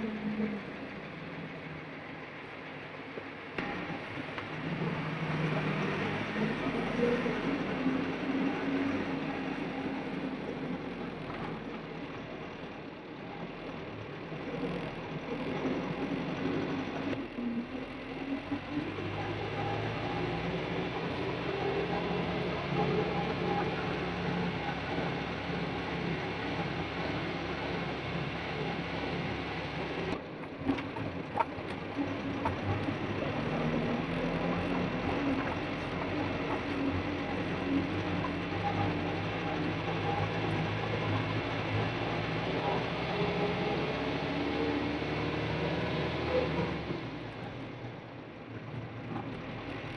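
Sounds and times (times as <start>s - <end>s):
diesel truck engine running: 0.0s - 49.9s
road noise: 0.0s - 49.9s.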